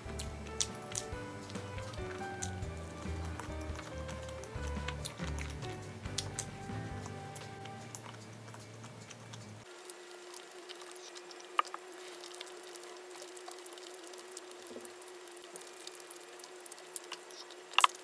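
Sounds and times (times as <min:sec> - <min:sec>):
background music: 0:00.0 - 0:09.6
soft chewing and mouth clicks: 0:00.1 - 0:18.0.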